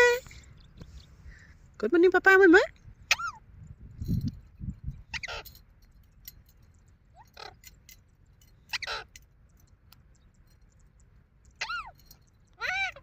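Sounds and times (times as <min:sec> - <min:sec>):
parrot squawking: 0:03.1 - 0:03.4, 0:05.1 - 0:05.5, 0:07.2 - 0:07.6, 0:08.7 - 0:09.1, 0:11.6 - 0:12.0, 0:12.6 - 0:13.0.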